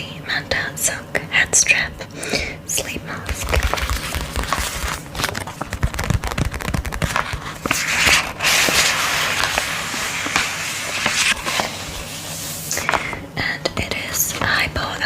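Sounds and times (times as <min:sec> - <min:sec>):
packaging crackling: 0:03.3 - 0:11.8
packaging rustling: 0:03.3 - 0:13.2.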